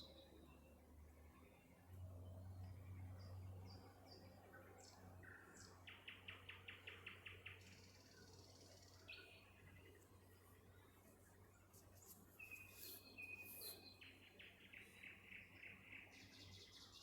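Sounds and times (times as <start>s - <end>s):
nightingale singing: 12.3s - 17.0s.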